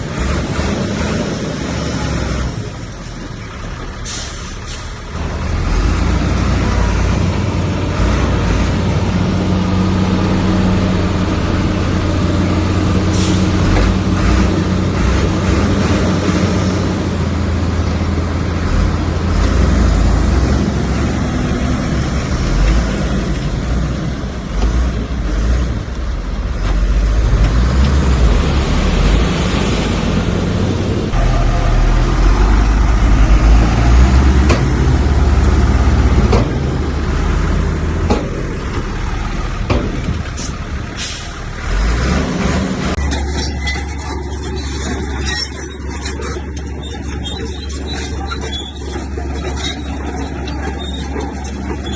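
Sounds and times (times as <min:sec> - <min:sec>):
heavy diesel machinery working: 0:00.0 - 0:51.9.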